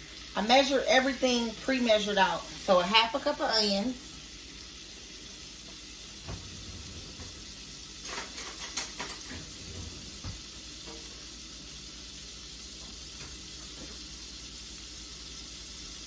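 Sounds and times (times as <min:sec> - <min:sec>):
onions sizzling in butter: 0:00.0 - 0:16.0
utensil clattering and scraping pan: 0:06.2 - 0:11.2.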